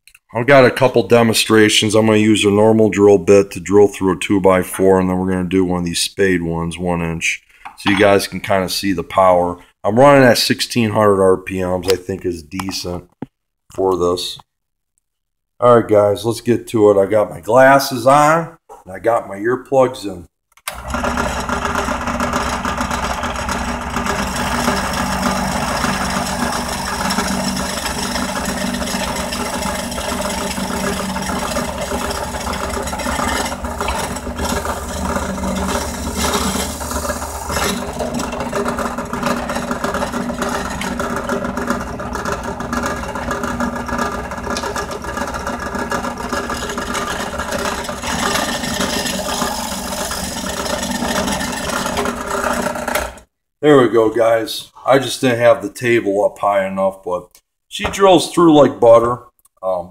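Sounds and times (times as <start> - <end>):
drill press drilling wood: 20.7 - 53.2.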